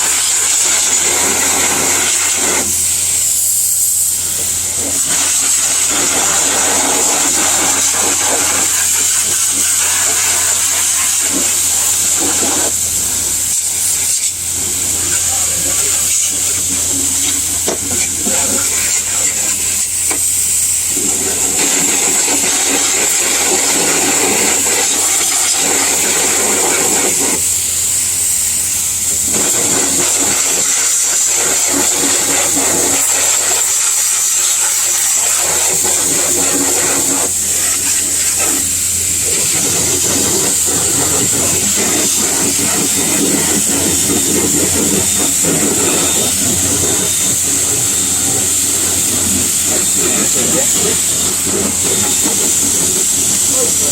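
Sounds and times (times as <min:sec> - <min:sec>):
water spray hissing: 0:00.0 - 0:53.9
rushing water: 0:21.0 - 0:27.4, 0:29.1 - 0:53.9.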